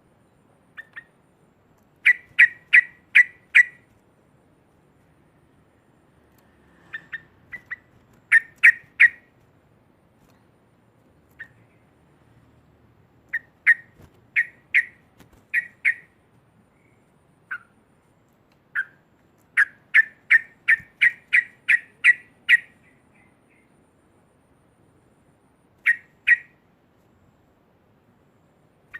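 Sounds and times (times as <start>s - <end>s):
bird calling sharp notes: 2.0s - 3.9s, 6.9s - 9.3s, 13.3s - 16.2s, 16.8s - 17.8s, 18.7s - 23.6s, 25.8s - 26.6s.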